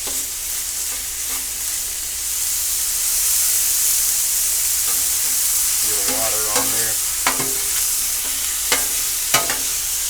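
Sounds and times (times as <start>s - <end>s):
chicken sizzling on a griddle: 0.0s - 10.0s.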